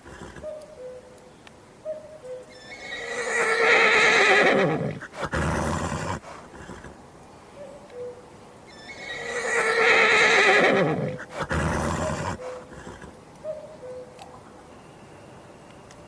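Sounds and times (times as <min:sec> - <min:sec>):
horse whinnying: 0:02.5 - 0:06.9, 0:08.7 - 0:13.1
horse blowing: 0:02.6 - 0:06.9, 0:08.8 - 0:13.2.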